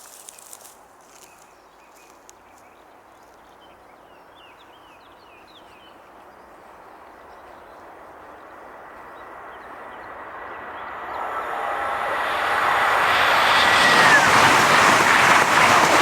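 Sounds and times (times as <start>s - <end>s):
train rolling: 7.3s - 16.0s.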